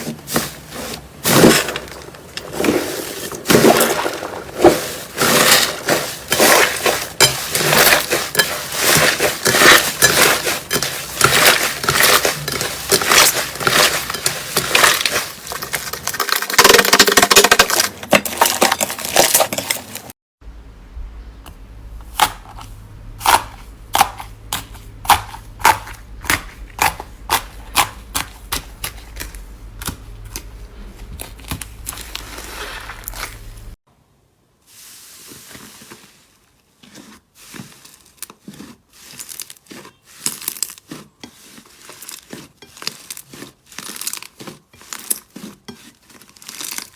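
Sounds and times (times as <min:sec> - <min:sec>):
slime crunching and crackling: 0:03.4 - 0:20.1, 0:21.9 - 0:33.8, 0:36.8 - 0:46.9
low hum: 0:20.4 - 0:33.8.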